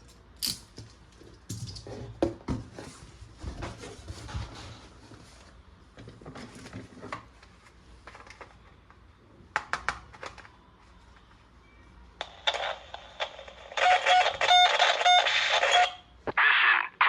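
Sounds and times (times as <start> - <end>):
toy electronic sound effect: 12.3 - 17.0.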